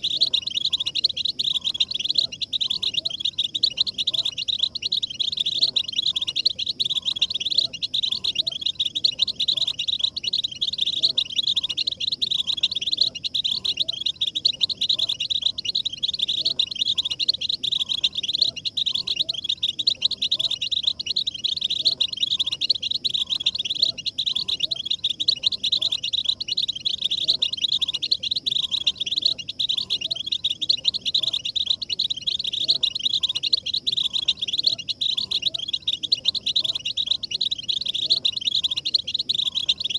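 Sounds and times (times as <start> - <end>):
finches twittering and trilling: 0.0 - 39.9.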